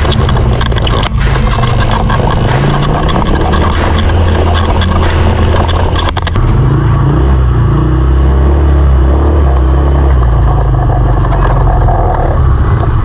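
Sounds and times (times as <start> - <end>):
clicks: 0.0 - 6.4
off-road engine running: 0.0 - 13.0.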